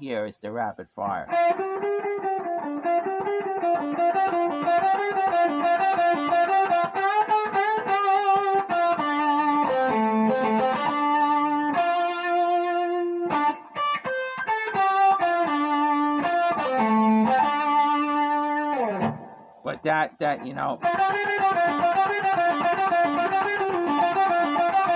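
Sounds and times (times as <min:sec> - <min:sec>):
distorted electric guitar lead: 0:01.2 - 0:24.9.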